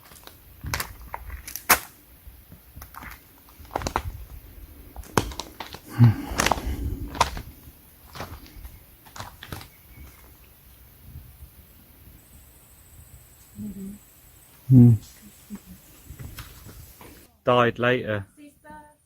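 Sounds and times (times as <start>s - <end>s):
footsteps on rocky ground: 2.4s - 10.5s, 16.0s - 17.3s.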